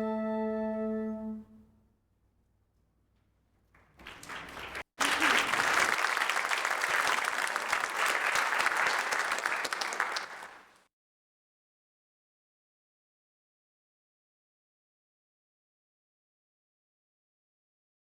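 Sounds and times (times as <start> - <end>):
held musical chord: 0.0 - 1.8
audience applauding: 3.8 - 10.8.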